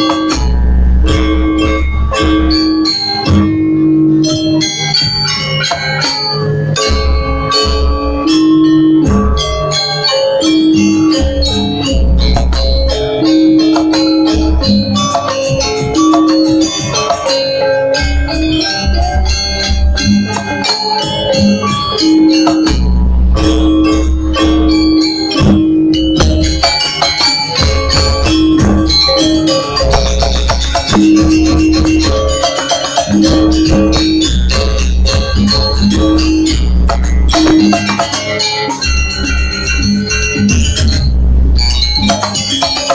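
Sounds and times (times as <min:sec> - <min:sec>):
busy rattling percussion: 0:00.0 - 0:42.9
held melody notes: 0:00.0 - 0:42.9
deep bass note: 0:27.6 - 0:29.1, 0:33.2 - 0:37.7.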